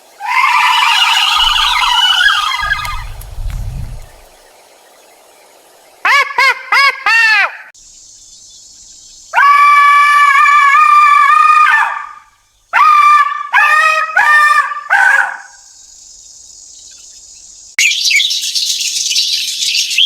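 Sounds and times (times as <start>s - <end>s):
canine yipping and howling: 0.2s - 3.1s, 12.8s - 15.6s.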